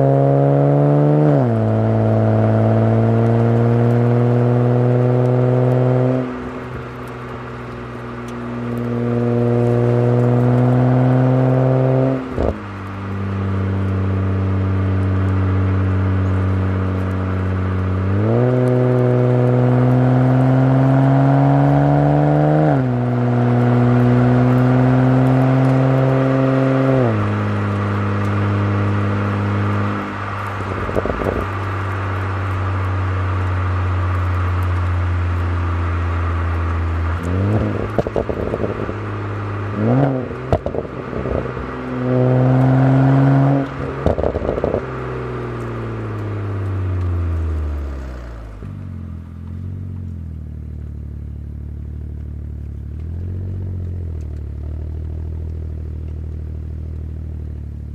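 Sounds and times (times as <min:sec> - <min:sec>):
car exhaust revving and upshifting: 0:00.0 - 0:57.9
exhaust crackle: 0:00.0 - 0:57.9.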